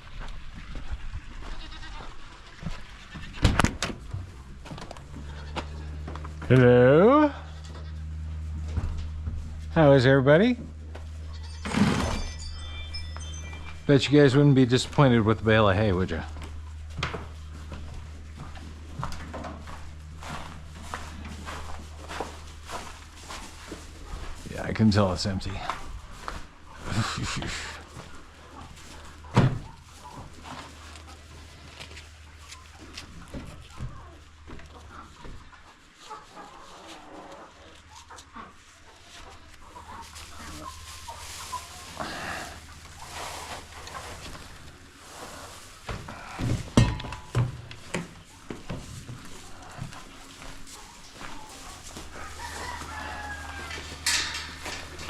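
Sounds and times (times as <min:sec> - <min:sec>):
rustle: 0:00.0 - 0:10.2, 0:19.8 - 0:55.0
chickens clucking: 0:00.1 - 0:11.6, 0:13.2 - 0:55.0
steady low hum: 0:04.0 - 0:32.4
rooster crowing: 0:52.1 - 0:55.0.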